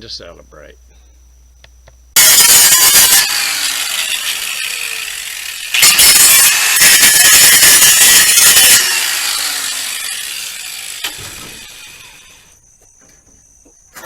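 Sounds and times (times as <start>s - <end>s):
power tool cutting sheet metal: 2.2s - 12.4s.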